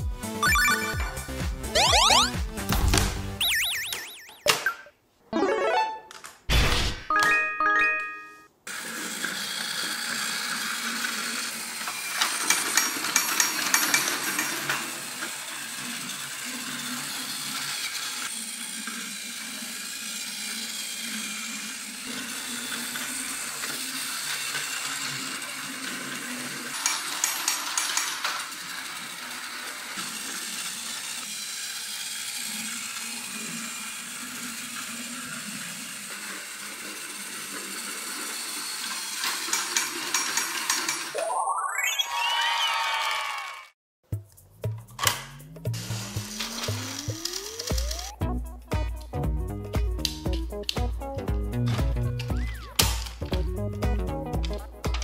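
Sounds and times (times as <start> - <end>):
toy train motor whir: 8.7 - 41.2, 45.8 - 48.2.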